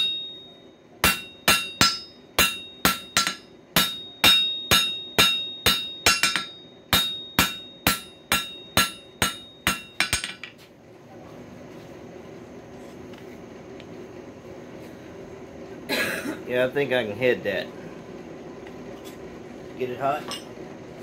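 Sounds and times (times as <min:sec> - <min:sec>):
hammer ringing on anvil: 0:00.0 - 0:10.5.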